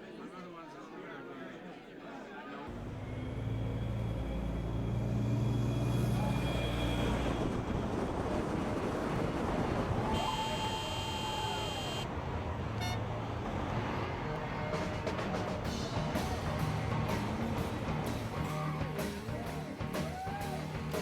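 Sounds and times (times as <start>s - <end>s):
traffic rush: 2.7s - 21.0s
vehicle engine humming: 2.7s - 21.0s.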